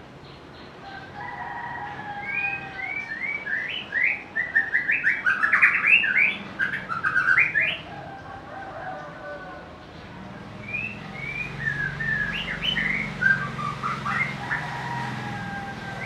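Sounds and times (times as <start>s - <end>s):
bird singing whistled notes: 2.3s - 7.9s, 10.6s - 14.4s.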